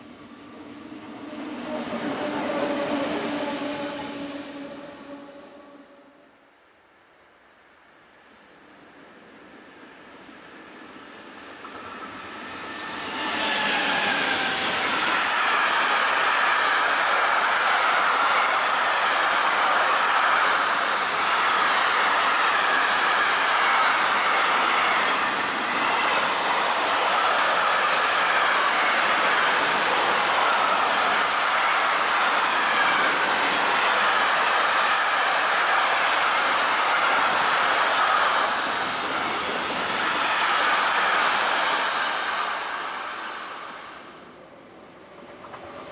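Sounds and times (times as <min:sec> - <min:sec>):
train passing: 0:00.0 - 0:06.6, 0:08.2 - 0:45.9
wheels clattering on rails: 0:11.6 - 0:43.0, 0:45.2 - 0:45.9.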